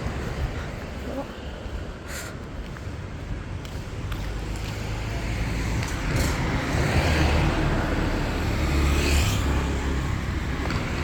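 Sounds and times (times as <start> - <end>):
steady traffic rumble: 0.0 - 11.0
vehicle passing close by: 4.9 - 11.0.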